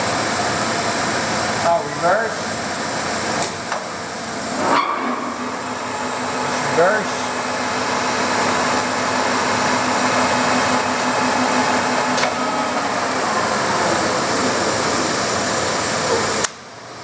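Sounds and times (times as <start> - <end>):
lathe running: 0.9 - 16.4.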